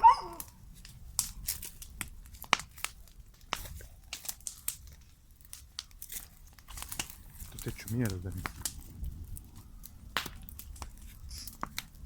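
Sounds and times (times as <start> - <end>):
papers and plastic crinkling: 1.2 - 9.0.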